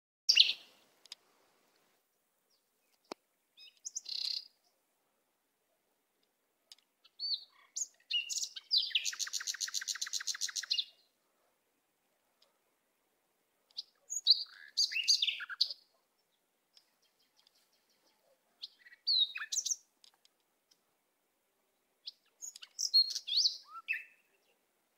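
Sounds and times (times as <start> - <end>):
bird chirps and whistles: 7.2 - 10.9, 14.1 - 15.6, 22.4 - 24.2
rapid bird trill: 7.2 - 10.9.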